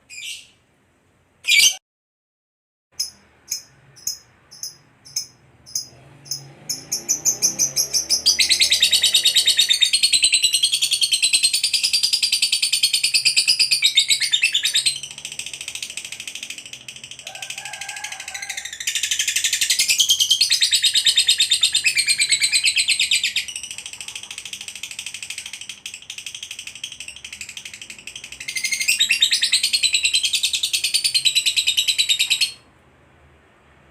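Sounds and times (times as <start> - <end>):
bird chirping: 0.0 - 0.6, 1.4 - 1.8, 3.0 - 32.7
lovebird chattering trill: 3.0 - 17.3.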